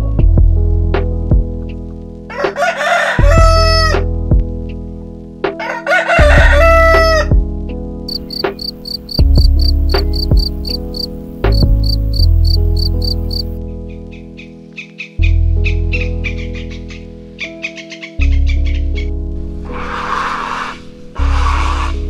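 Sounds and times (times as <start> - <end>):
background music with low notes: 0.0 - 22.0
rooster crowing: 2.3 - 4.0, 5.6 - 7.3, 11.8 - 13.4
field cricket chirping: 8.1 - 13.6.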